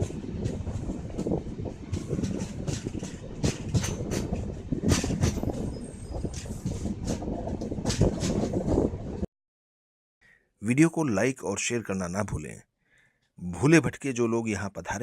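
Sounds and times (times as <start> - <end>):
wheels clicking over rail joints: 0.0 - 8.9
train wheels rumbling on rail: 0.0 - 9.3.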